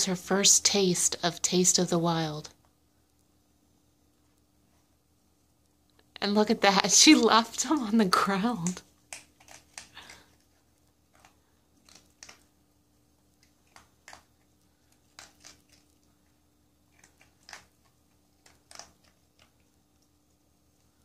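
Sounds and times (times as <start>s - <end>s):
dog crunching dry kibble: 8.4s - 12.6s, 13.2s - 20.2s.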